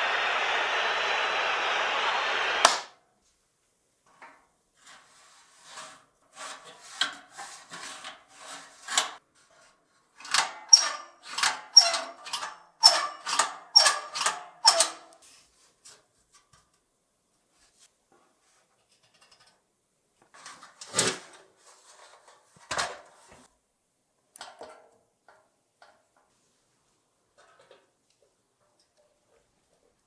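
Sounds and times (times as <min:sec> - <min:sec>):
steady hiss: 0:00.0 - 0:02.9
click: 0:02.4 - 0:02.9.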